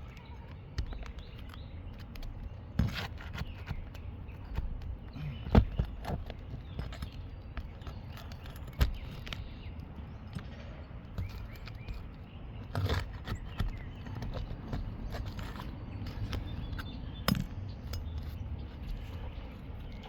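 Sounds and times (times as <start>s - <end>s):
shingles crinkling rustles: 0.0s - 20.0s
roof shingles knocking: 0.7s - 9.7s.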